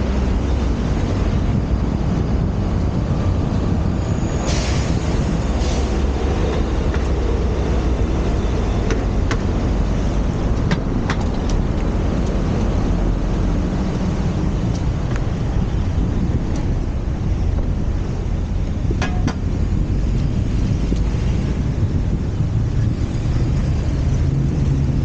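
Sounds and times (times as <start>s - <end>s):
bicycle road noise: 0.0s - 25.0s
wind on microphone: 0.0s - 25.0s.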